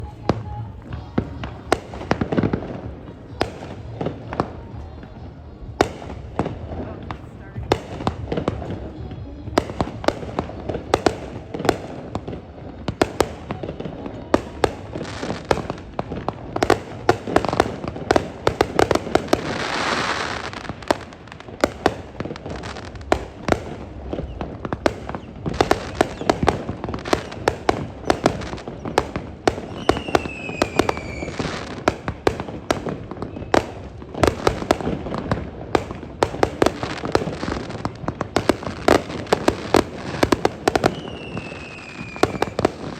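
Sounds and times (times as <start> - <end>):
fireworks bangs and crackles: 0.0 - 42.9
firework falling whistle: 29.7 - 31.4.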